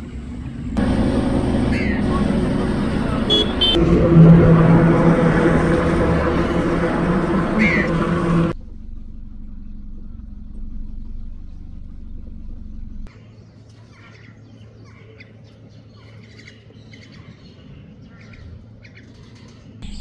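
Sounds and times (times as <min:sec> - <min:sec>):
steady low hum: 0:00.5 - 0:13.1
birds chirping: 0:00.8 - 0:03.8.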